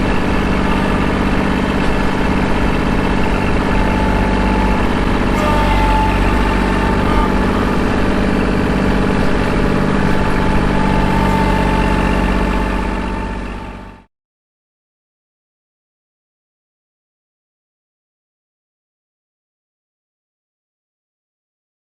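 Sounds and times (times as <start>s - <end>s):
tractor diesel engine running: 0.0s - 14.1s.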